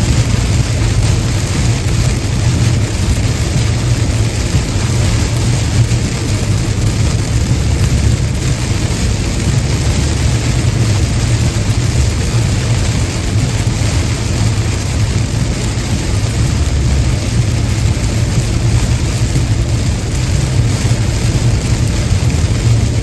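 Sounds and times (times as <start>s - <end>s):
car tyres and engine drone: 0.0s - 23.0s
rain and wet road spray hiss: 0.0s - 23.0s.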